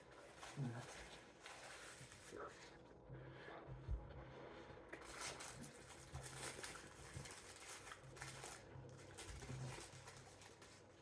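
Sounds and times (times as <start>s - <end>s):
paper wrappers crinkling: 5.0s - 11.0s.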